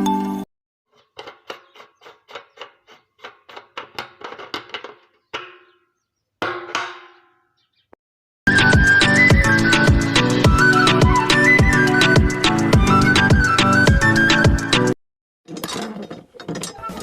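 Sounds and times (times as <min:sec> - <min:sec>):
sharp knocks: 0:06.4 - 0:07.4.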